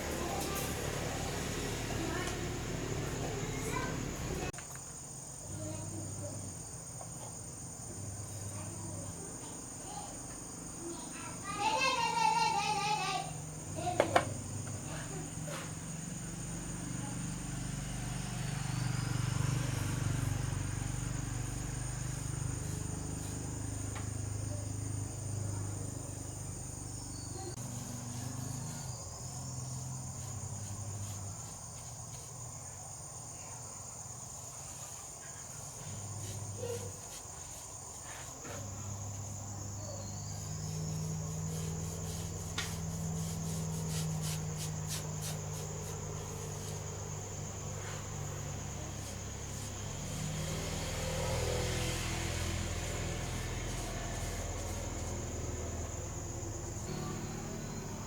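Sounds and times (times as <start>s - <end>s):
insect chirring: 3.0s - 58.0s
low hum: 54.7s - 58.0s.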